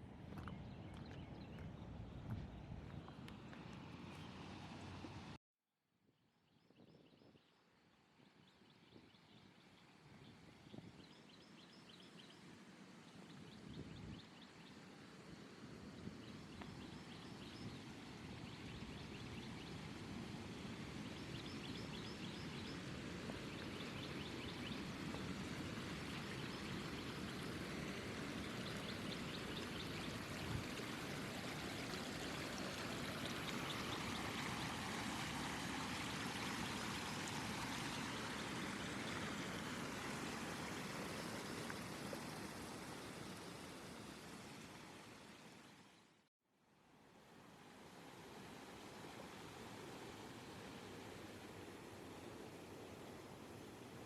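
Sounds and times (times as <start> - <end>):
stream water rushing: 19.9 - 45.9, 47.1 - 54.0.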